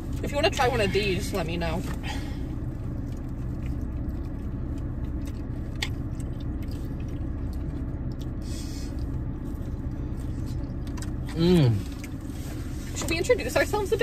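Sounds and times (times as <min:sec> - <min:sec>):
low hum inside car: 0:00.0 - 0:14.0
chewing and biting chicken: 0:02.8 - 0:12.2.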